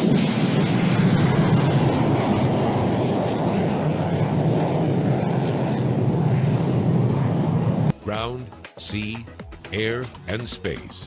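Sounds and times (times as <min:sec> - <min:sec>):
fighter jet engine roar: 0:00.0 - 0:08.6.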